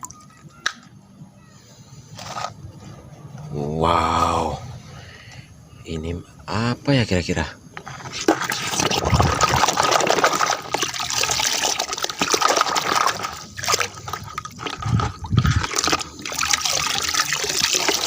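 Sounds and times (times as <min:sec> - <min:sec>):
water splashing over toy vehicles: 0:08.0 - 0:18.0.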